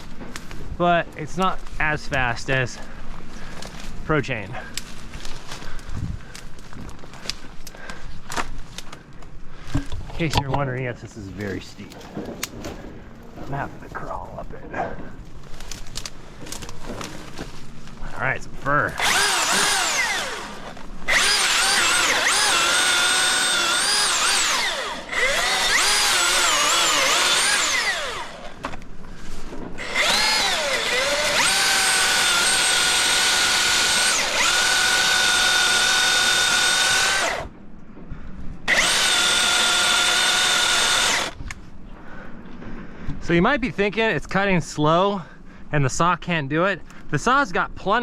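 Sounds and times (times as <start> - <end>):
electric chainsaw cutting wood: 18.9 - 28.8, 29.8 - 37.5, 38.7 - 41.5.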